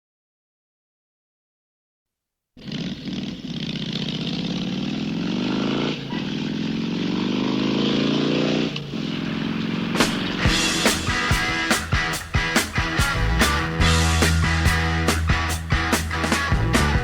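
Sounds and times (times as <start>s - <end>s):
dirt bike engine accelerating: 2.6s - 17.0s
rock music: 9.9s - 17.0s
drum strikes: 10.0s - 17.0s.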